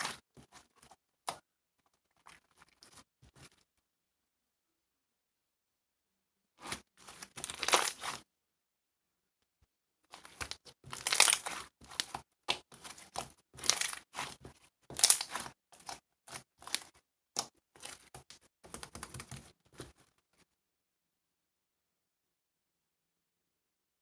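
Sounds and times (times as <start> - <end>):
crinkling and rustling: 6.6 - 8.2, 10.1 - 20.5.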